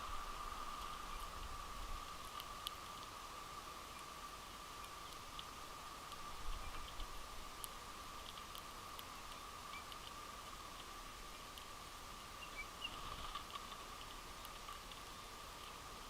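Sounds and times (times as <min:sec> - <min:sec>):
finches ticking and clicking: 0:00.8 - 0:16.0
soft bird chirps: 0:06.2 - 0:07.7, 0:08.3 - 0:10.1, 0:12.3 - 0:15.8.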